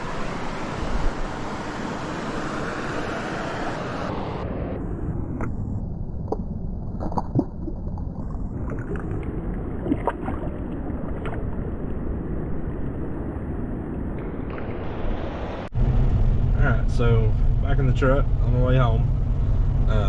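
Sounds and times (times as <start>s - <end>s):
mountain stream rushing: 0.0s - 4.5s, 14.2s - 15.7s
small water splashes: 6.3s - 11.7s.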